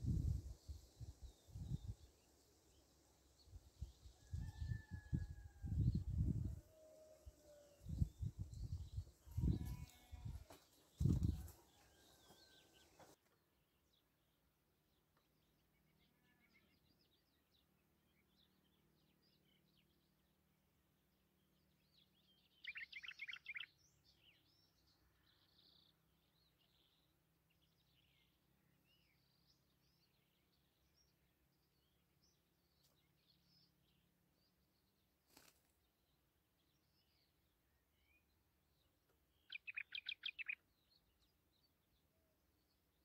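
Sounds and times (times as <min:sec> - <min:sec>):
faint songbird chirps: 0:21.4 - 0:43.0.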